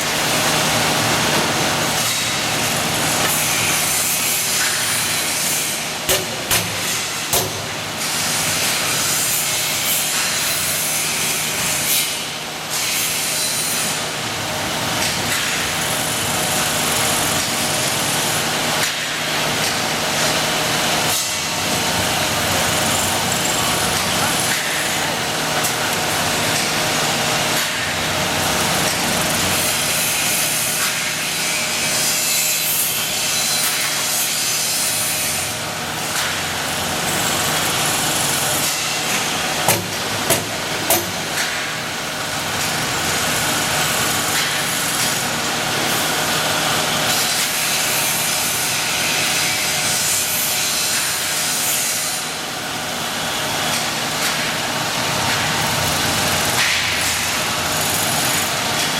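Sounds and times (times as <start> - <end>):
drilling machine cutting steel: 0.0 - 14.2
sharp knocks: 39.7 - 41.6.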